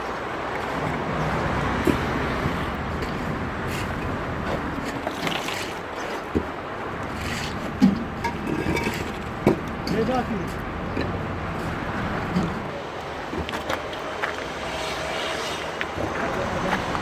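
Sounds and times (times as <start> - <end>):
traffic-like background noise: 0.0 - 17.0.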